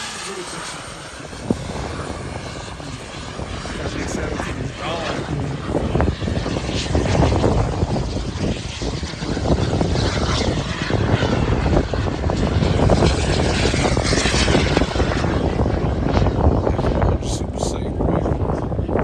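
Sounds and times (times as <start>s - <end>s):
model airplane engines overhead: 0.0s - 19.0s.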